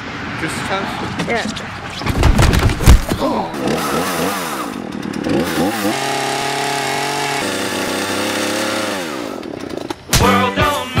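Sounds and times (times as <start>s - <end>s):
chainsaw revving: 3.4s - 10.1s.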